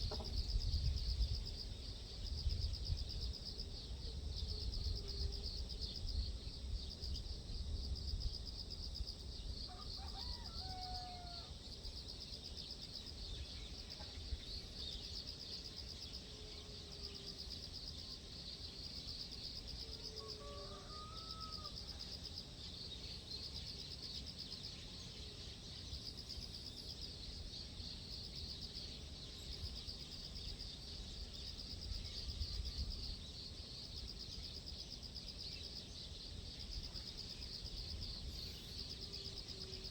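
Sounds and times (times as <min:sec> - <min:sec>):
wind rumble on microphone: 0:00.0 - 0:09.7
high insect chorus: 0:00.0 - 0:39.9.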